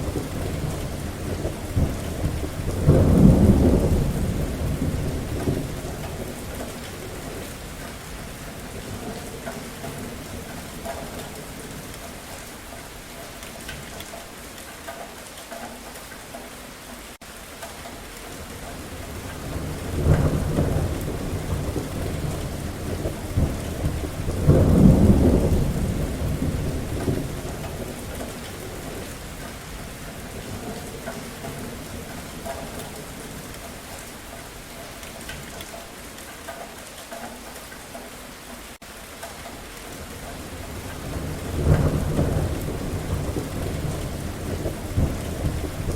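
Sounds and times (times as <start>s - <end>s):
thunder rumbling: 0.0s - 12.4s, 18.5s - 34.0s, 40.0s - 45.9s
steady rain falling: 0.0s - 45.9s.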